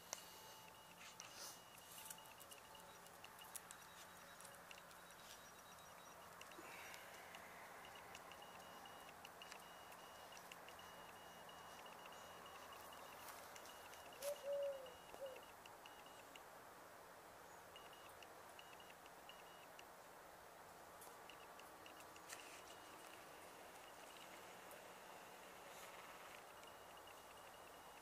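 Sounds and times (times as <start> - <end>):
faint high-pitched chirring: 0.0 - 16.5, 17.4 - 19.9, 20.8 - 28.0
low bird call: 10.8 - 15.6.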